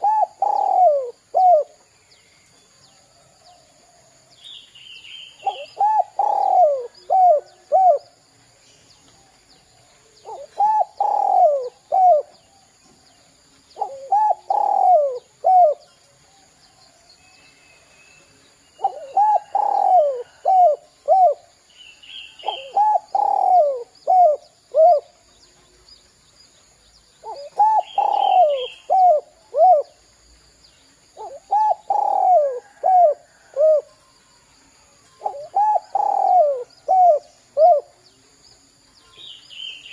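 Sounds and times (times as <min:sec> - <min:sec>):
dove cooing: 0:00.0 - 0:01.8, 0:05.3 - 0:08.2, 0:10.2 - 0:12.4, 0:13.8 - 0:15.9, 0:18.8 - 0:21.6, 0:22.3 - 0:25.2, 0:27.2 - 0:30.0, 0:31.2 - 0:34.0, 0:35.2 - 0:38.0
faint bird chirp: 0:00.0 - 0:39.9.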